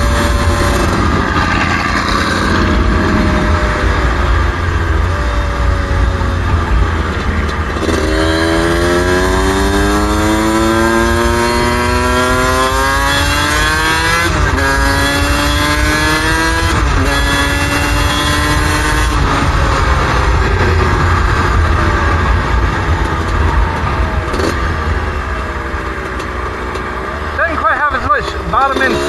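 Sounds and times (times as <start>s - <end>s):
wind rumble on microphone: 0.0s - 26.1s
two-stroke engine revving through gears: 7.6s - 19.4s.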